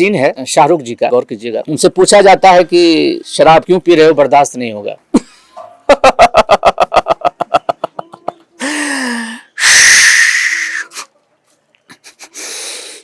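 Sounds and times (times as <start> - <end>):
man laughing: 5.1 - 8.8.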